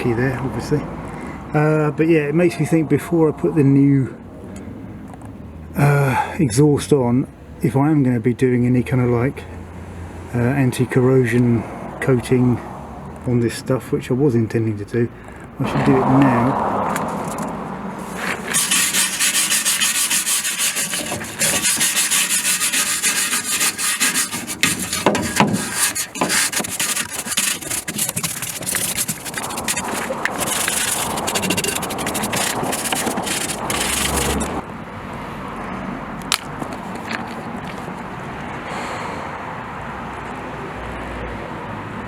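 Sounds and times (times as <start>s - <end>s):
abrasive scrubbing on rusty steel: 15.9s - 34.6s.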